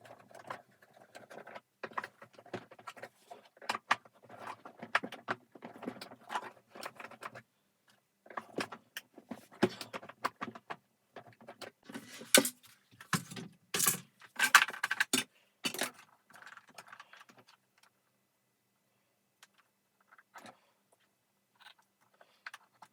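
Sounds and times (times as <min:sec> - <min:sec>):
vacuum cleaner parts clicking and knocking: 0:08.2 - 0:17.9.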